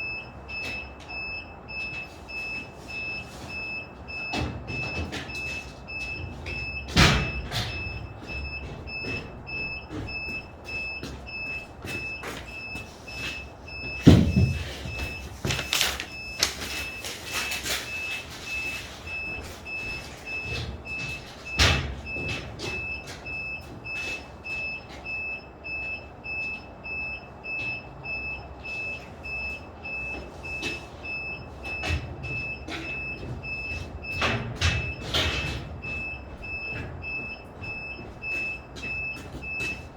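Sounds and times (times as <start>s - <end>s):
machine warning beeper: 0.0s - 39.9s
boards knocking and thudding: 13.9s - 15.8s.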